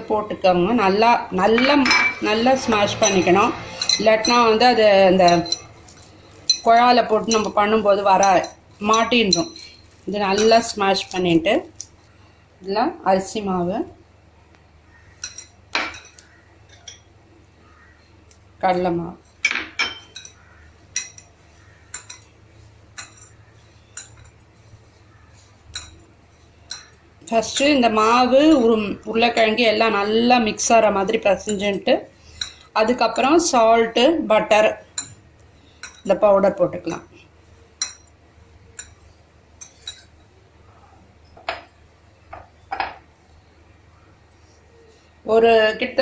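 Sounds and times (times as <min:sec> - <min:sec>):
steel utensil tapping steel bowl: 0:01.5 - 0:11.2, 0:19.4 - 0:24.4, 0:25.1 - 0:26.0, 0:26.7 - 0:27.9, 0:35.8 - 0:36.2, 0:37.8 - 0:39.0.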